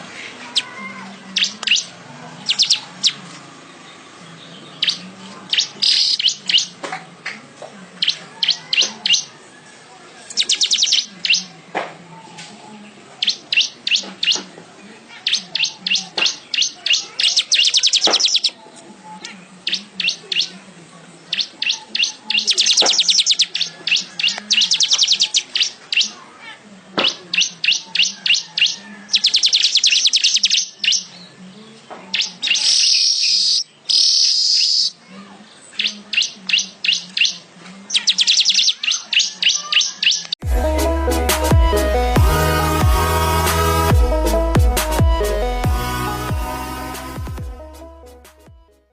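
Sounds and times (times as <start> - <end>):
weaver bird chattering song: 0.4 - 6.8, 8.0 - 9.4, 10.3 - 11.5, 13.2 - 14.5, 15.1 - 20.6, 21.2 - 26.2, 27.0 - 35.0, 35.6 - 40.4.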